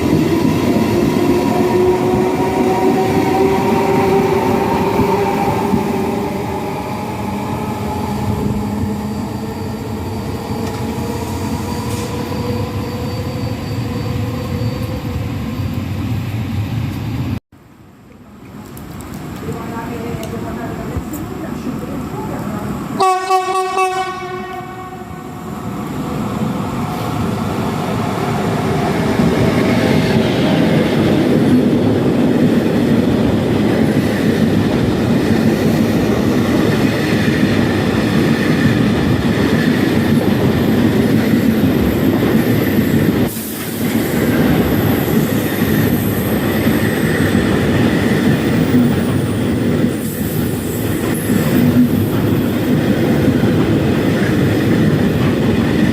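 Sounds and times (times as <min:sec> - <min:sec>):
train wheels rumbling on rail: 0:00.0 - 0:17.4, 0:18.5 - 0:55.9
train horn blast: 0:23.0 - 0:25.3.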